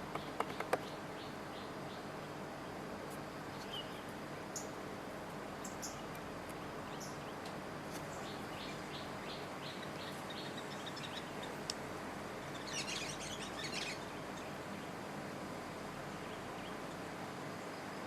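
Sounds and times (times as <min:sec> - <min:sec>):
birds chirping: 0:00.0 - 0:02.8, 0:03.4 - 0:04.8, 0:05.5 - 0:11.8, 0:12.4 - 0:15.0
faint outdoor hiss: 0:00.0 - 0:18.0.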